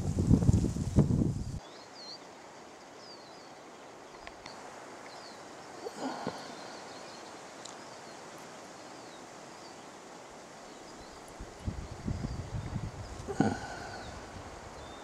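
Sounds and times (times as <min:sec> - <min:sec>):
rustling noise: 0:00.0 - 0:01.6
outdoor background hiss: 0:00.0 - 0:15.0
small birds chirping: 0:01.4 - 0:15.0.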